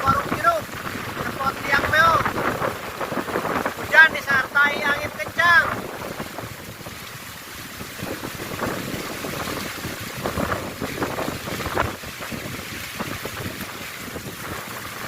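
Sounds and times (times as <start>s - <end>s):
choppy water: 0.0s - 15.0s
rain: 0.0s - 15.0s
wind gusting across microphone: 0.0s - 15.0s.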